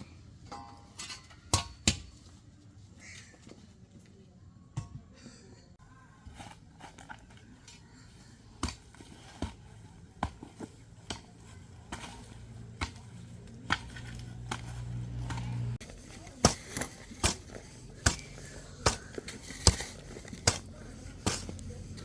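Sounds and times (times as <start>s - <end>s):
low hum: 13.0s - 15.8s.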